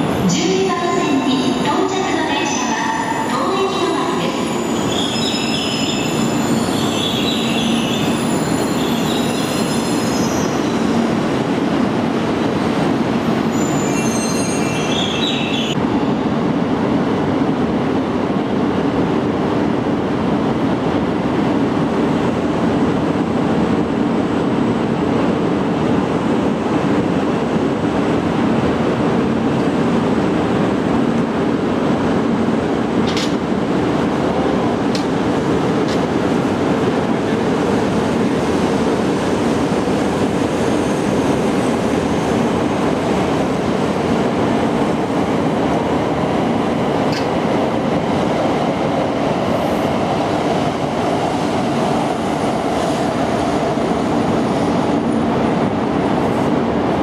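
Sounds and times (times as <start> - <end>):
train wheels rumbling on rail: 0.0 - 57.0
high wheel squeals: 13.5 - 15.4.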